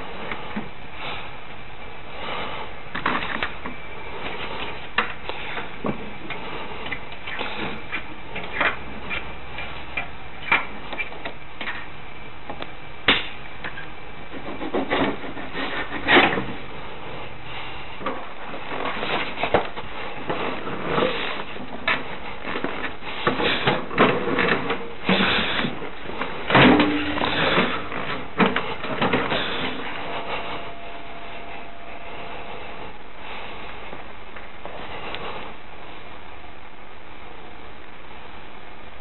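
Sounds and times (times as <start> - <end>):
steady hiss: 0.0 - 39.0.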